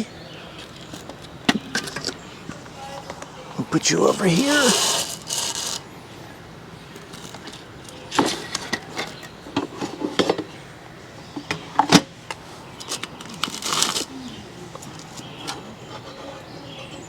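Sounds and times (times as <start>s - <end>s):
kitchen items clattering: 0.7s - 5.8s, 7.0s - 10.5s.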